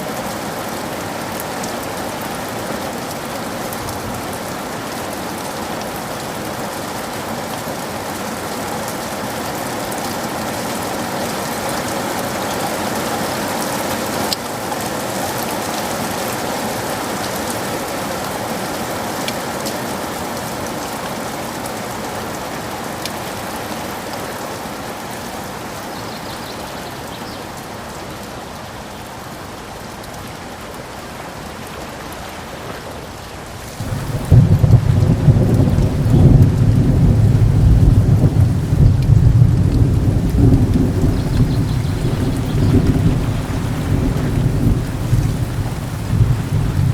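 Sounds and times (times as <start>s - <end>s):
heavy rainfall: 0.0s - 46.9s
loud low thunder rumble: 33.8s - 46.9s.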